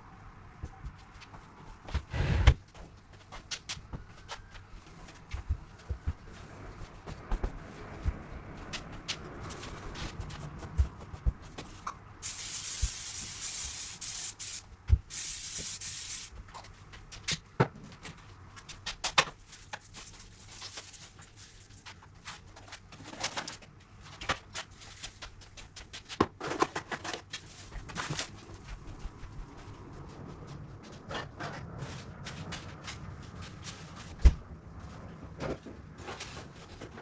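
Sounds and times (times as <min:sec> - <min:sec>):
cleaning spray hissing: 0:12.2 - 0:16.3.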